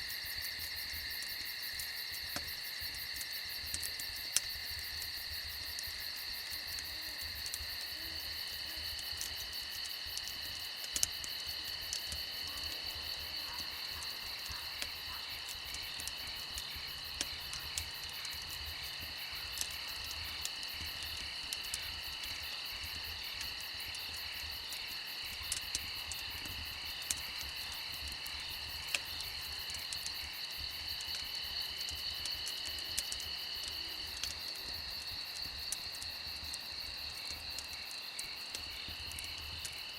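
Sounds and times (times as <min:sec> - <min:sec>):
crickets trilling: 0:00.0 - 0:39.9
wood fire crackling: 0:00.0 - 0:39.9.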